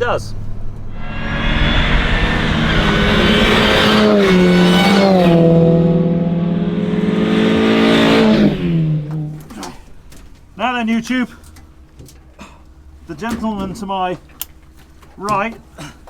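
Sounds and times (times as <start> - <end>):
car engine running hard: 0.9 - 10.5.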